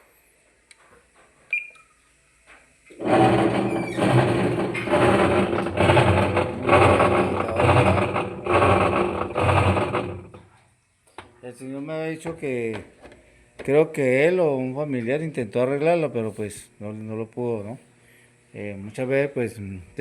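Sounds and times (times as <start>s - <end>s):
washing machine mechanical racket: 2.9s - 10.6s.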